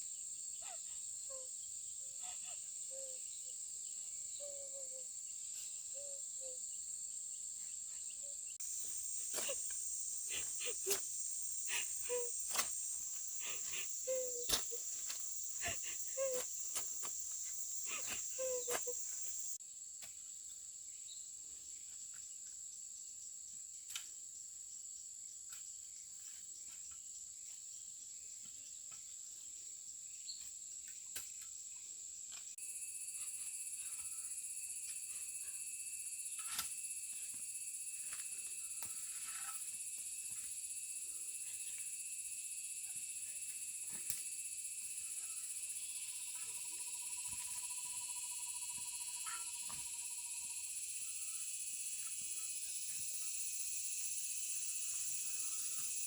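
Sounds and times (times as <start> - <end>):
high-pitched insect chorus: 0.0 - 19.6, 32.4 - 56.0.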